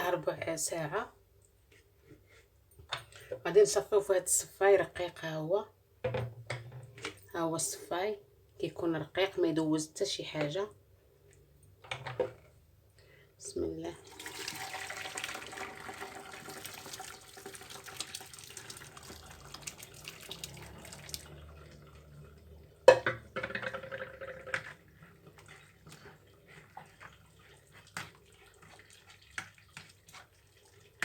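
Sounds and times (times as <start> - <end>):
dripping: 14.0 - 22.8, 25.0 - 31.0
liquid trickling through strainer: 14.1 - 22.9.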